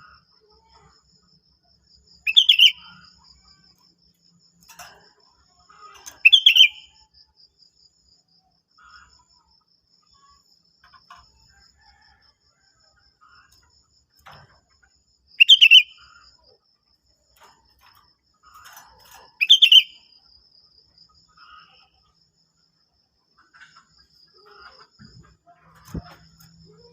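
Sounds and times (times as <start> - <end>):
faint bird chirps: 0.0 - 22.8
bulbul calling: 6.2 - 6.9, 15.4 - 16.1, 19.4 - 20.0.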